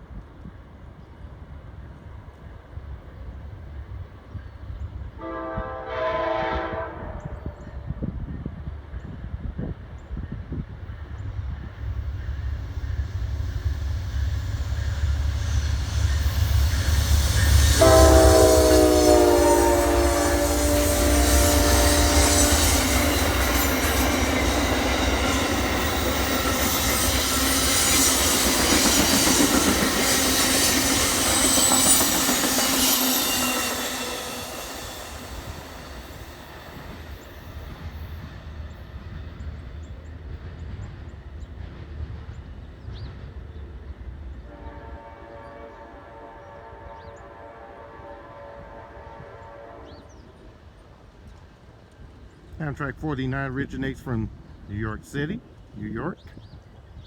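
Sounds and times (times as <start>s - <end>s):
diesel locomotive engine rumble: 0.0s - 57.0s
train horn: 5.1s - 8.1s, 16.1s - 37.2s, 44.4s - 50.5s
train wheel noise: 6.6s - 45.3s
high-pitched wheel squeal: 30.0s - 36.9s.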